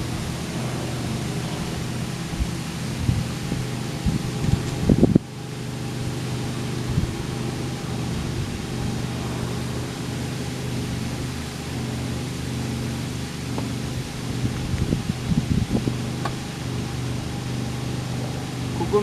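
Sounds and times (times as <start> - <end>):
boat engine humming: 0.0 - 19.0
hiss of water and air: 0.0 - 19.0.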